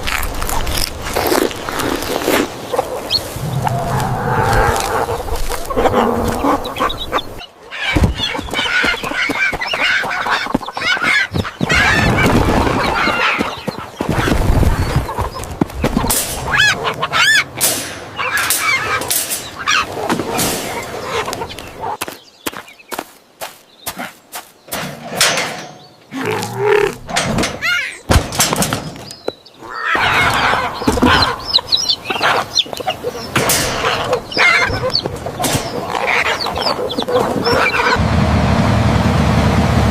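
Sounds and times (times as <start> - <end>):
chickens clucking: 0.5 - 38.0
poultry squawking and honking: 2.7 - 22.0, 29.6 - 38.0.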